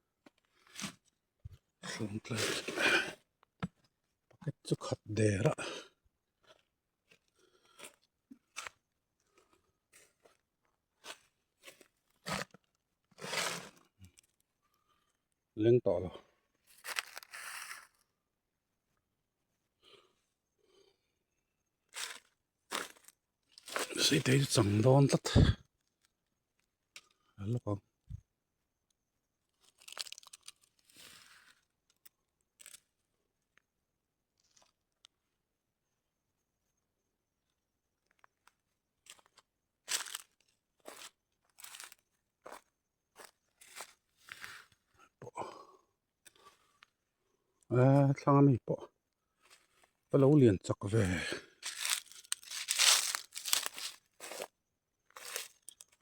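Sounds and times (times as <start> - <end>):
dried fruits crunching and crackling: 16.8 - 17.4, 21.9 - 24.5, 29.6 - 32.8, 39.0 - 43.9, 51.6 - 54.5, 55.1 - 56.0
dry material rustling and crackling: 51.6 - 54.5.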